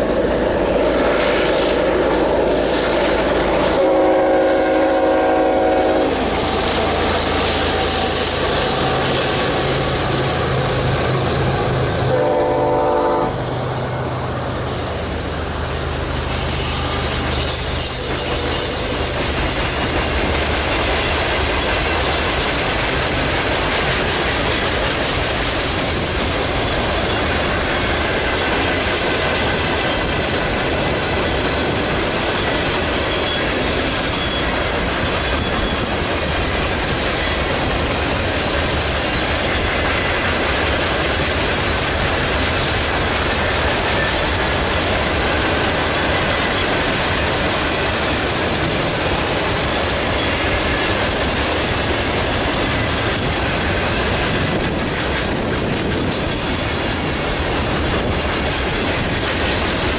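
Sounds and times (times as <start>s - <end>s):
clickety-clack over rail joints: 0.0s - 59.9s
diesel locomotive hum: 0.0s - 59.9s
steel wheels rumbling on rail: 0.0s - 59.9s
faint wheel squeal: 34.1s - 34.6s.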